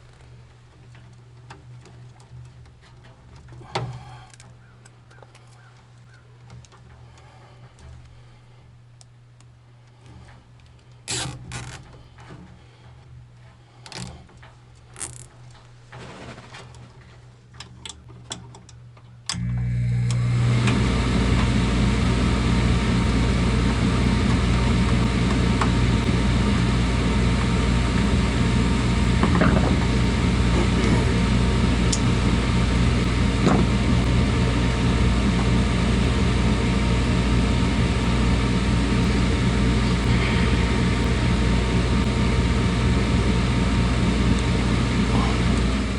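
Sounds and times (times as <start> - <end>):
machine whooshing hum: 19.4 - 45.9.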